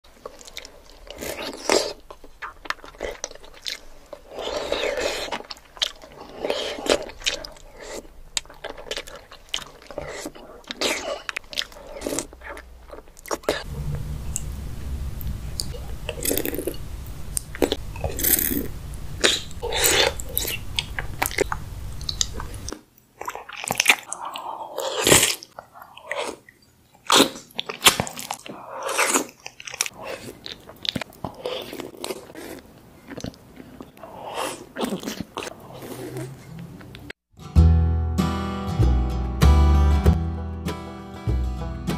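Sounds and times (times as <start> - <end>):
people chewing food: 0.1 - 13.7, 16.1 - 37.2
low steady hum: 7.0 - 22.7.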